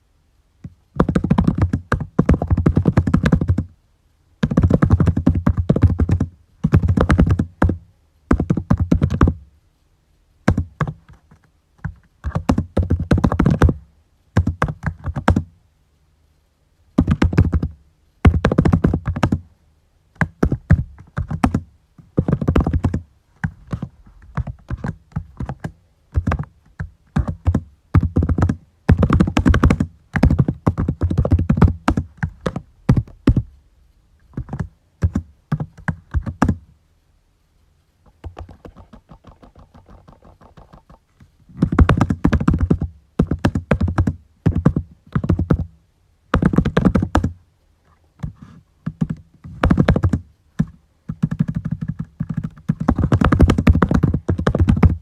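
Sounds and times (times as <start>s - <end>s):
typing on a computer keyboard: 1.0s - 3.7s, 4.4s - 9.4s, 22.2s - 23.0s, 23.7s - 33.4s, 41.6s - 45.7s, 48.9s - 55.0s.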